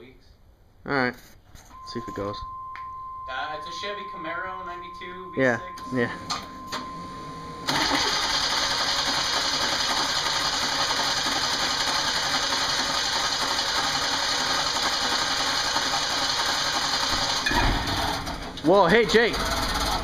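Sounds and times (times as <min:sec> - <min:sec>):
starter cranking car engine: 0:07.6 - 0:20.0.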